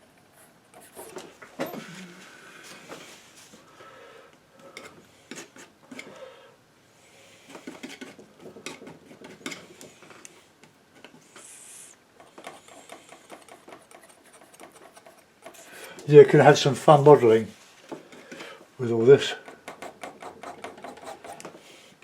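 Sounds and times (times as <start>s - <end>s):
painting knife scraping paint: 11.3s - 16.0s, 19.4s - 21.5s.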